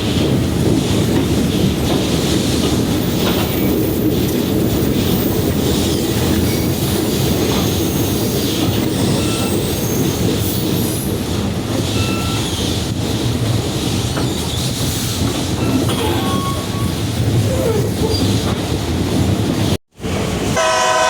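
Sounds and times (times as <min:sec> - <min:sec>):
train cars rumbling on track: 0:00.0 - 0:21.0
wheel squeals: 0:07.4 - 0:11.0, 0:11.8 - 0:12.8, 0:14.2 - 0:18.5.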